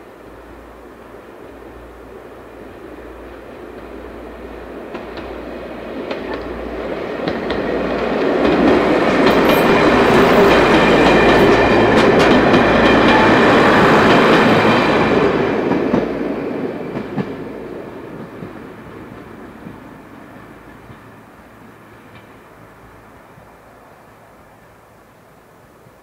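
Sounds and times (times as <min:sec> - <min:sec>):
diesel train engines: 0:00.0 - 0:26.0
wheels clicking on rails: 0:04.9 - 0:16.2.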